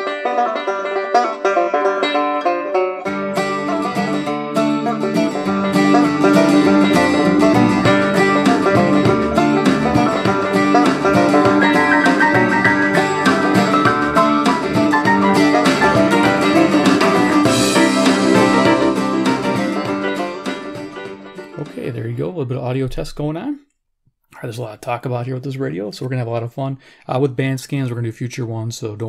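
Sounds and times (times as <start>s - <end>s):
plucked-string music on radio: 0.0s - 22.0s.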